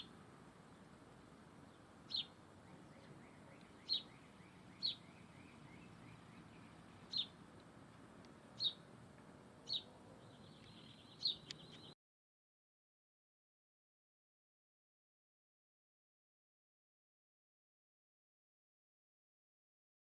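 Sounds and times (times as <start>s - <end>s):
outdoor background noise: 0.0s - 12.0s
bird chirping: 1.6s - 7.4s, 8.5s - 8.9s, 9.6s - 12.0s.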